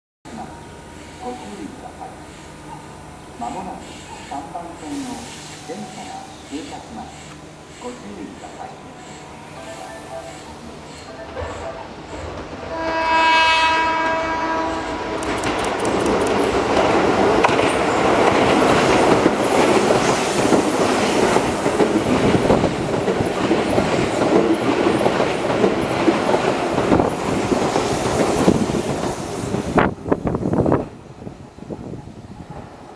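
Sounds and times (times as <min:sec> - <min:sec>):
train horn: 0:12.6 - 0:15.2
train wheels clattering over rail joints: 0:15.1 - 0:29.7.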